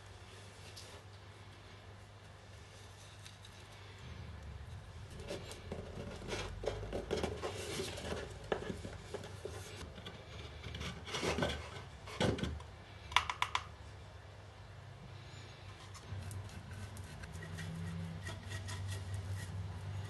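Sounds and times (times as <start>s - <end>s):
scraping and rubbing wood: 4.7s - 12.6s, 15.7s - 20.0s.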